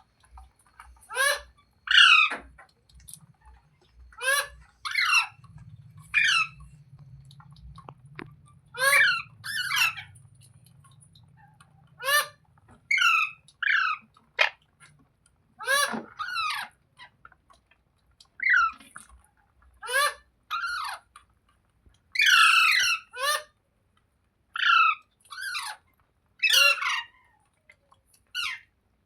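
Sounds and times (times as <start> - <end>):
parrot giving harsh calls: 1.0 - 2.3, 4.1 - 5.4, 6.1 - 6.6, 8.7 - 10.2, 11.9 - 14.6.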